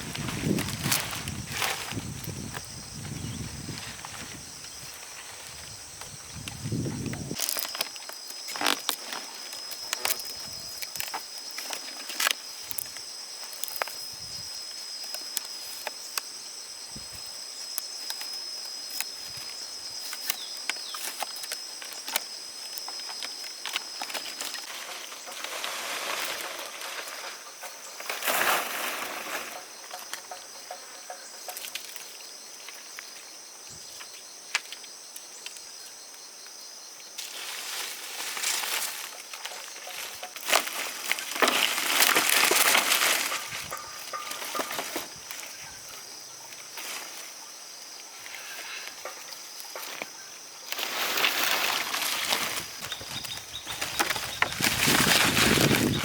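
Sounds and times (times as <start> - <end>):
rustling: 0.0 - 2.7, 18.1 - 29.8, 37.2 - 45.9, 50.7 - 56.0
insects buzzing: 0.0 - 56.0.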